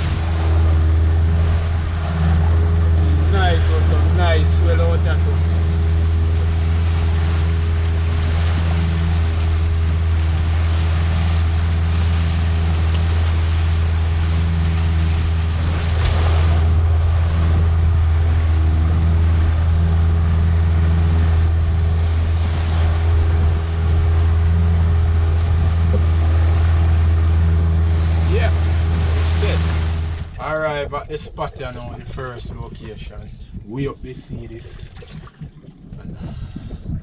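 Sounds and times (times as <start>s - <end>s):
boat engine running: 0.0s - 37.0s
water rushing past hull: 0.0s - 37.0s
wind on microphone: 0.0s - 37.0s
wash of spray: 27.8s - 30.3s.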